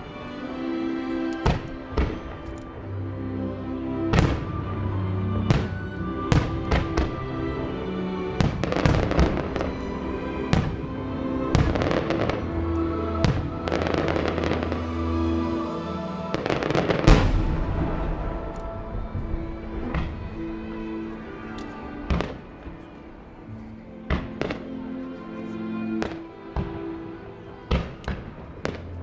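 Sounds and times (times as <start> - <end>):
music soundtrack: 0.0 - 29.0
fireworks bursting: 16.7 - 20.4.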